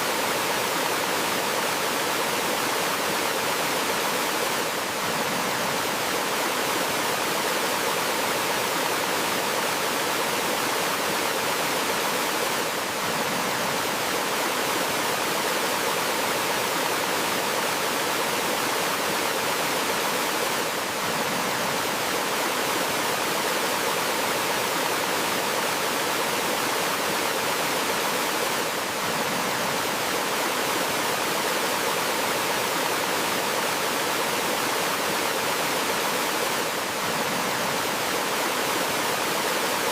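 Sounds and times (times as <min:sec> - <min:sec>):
water flowing over rocks: 0:00.0 - 0:39.9.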